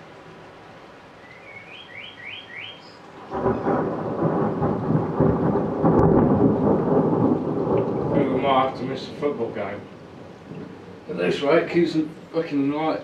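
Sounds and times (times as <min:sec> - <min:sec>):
thunder rumbling: 0:03.2 - 0:12.3.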